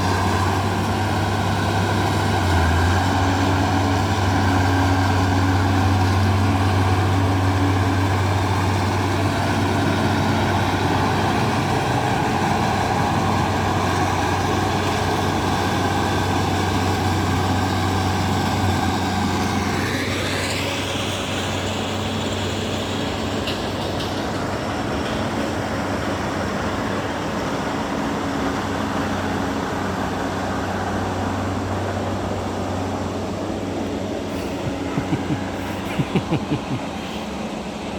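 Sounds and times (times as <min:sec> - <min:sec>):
bulldozer diesel engine running: 0:00.0 - 0:37.9
rising engine whine: 0:27.8 - 0:37.9.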